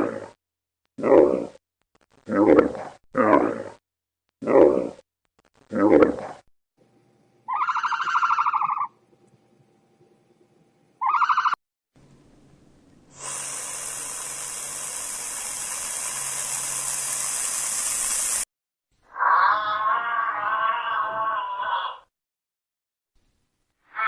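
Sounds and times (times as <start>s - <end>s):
steady hissing: 13.1s - 18.5s.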